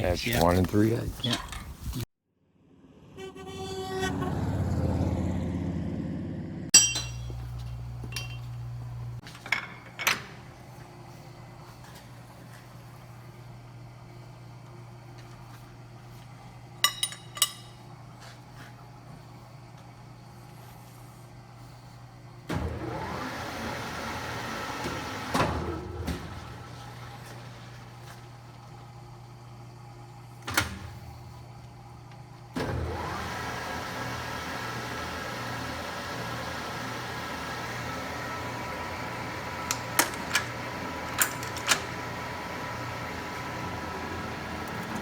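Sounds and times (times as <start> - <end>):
sharp metal clink: 6.8 - 7.4
lathe motor running: 32.7 - 45.0.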